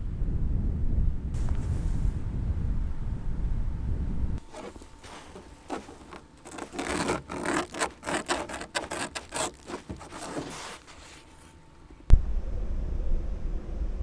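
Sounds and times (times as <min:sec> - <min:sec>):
quick scraping strokes: 0:04.4 - 0:11.5.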